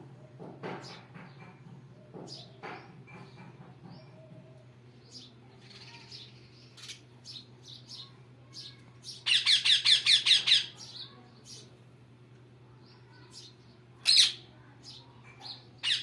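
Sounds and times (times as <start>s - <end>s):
parrots chirping and squawking: 9.1s - 11.0s, 14.0s - 14.4s, 15.8s - 16.0s.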